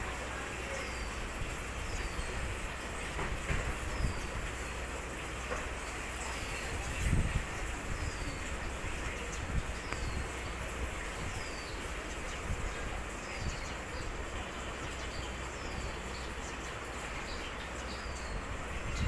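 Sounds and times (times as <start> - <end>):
bird chirping: 7.9 - 19.0.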